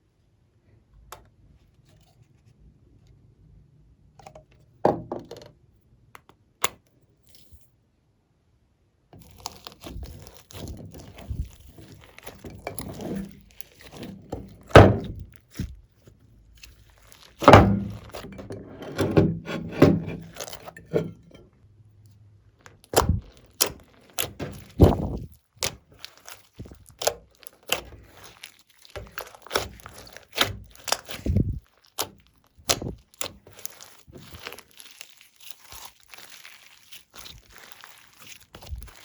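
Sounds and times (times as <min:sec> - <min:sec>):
slime clicking and popping: 0:22.8 - 0:39.0.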